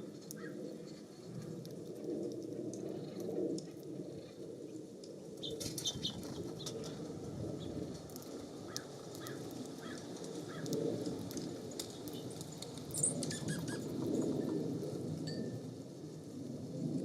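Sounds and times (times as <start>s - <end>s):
small birds chirping: 5.4s - 6.8s, 12.0s - 14.5s.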